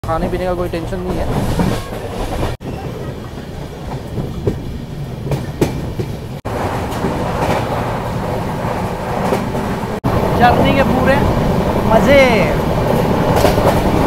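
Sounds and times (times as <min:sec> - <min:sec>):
freight train wagons rumbling: 0:00.0 - 0:14.0
passenger coach rumble and rattle: 0:00.0 - 0:14.0
train wheels clacking: 0:00.1 - 0:09.8, 0:12.9 - 0:14.0.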